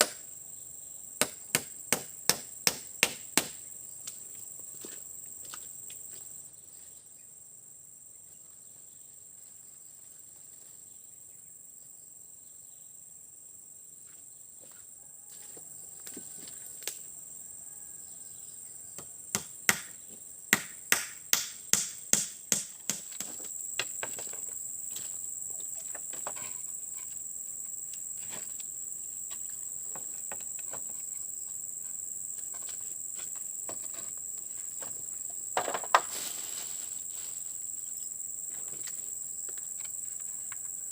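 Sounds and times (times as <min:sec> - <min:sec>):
crickets chirring: 0:00.0 - 0:40.9
sharp knocks on wood: 0:19.0 - 0:24.2.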